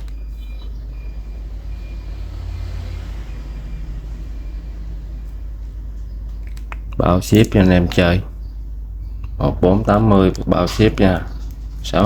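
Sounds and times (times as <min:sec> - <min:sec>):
low background rumble: 0:03.3 - 0:12.0.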